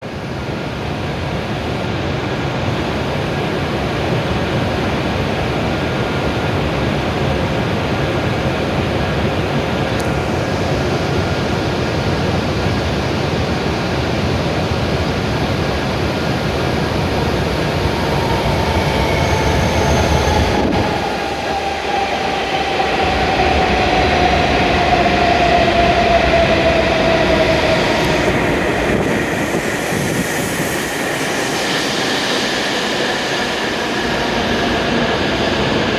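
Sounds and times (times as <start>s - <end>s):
train rumbling: 0.0s - 35.9s
whine sinking in pitch: 16.4s - 35.9s.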